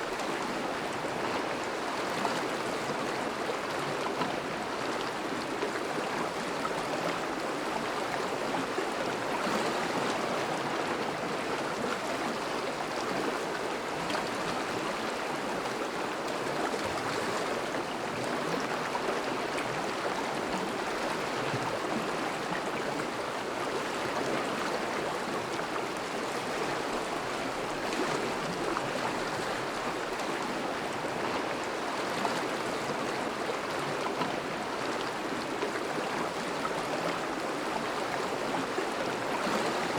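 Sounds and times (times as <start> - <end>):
river water rushing and burbling: 0.0 - 39.9.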